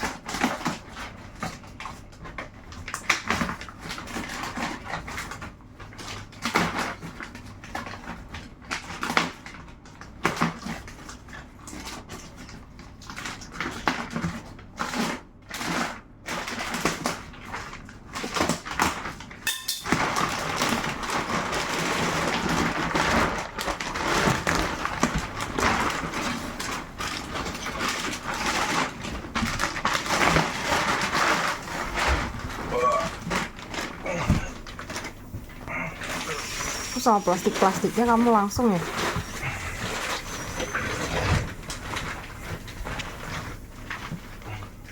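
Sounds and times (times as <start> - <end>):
plastic wrap crinkling: 16.5 - 44.9
packaging rustling and knocking: 19.9 - 36.2.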